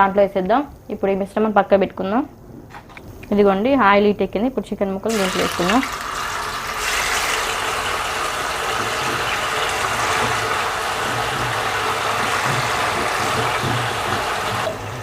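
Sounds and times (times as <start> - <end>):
chicken sizzling in hot oil: 5.1 - 15.0.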